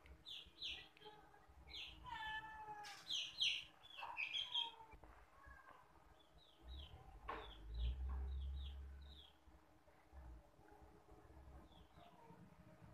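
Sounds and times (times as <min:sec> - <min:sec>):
bird chirping: 0:00.0 - 0:05.0, 0:06.1 - 0:09.5.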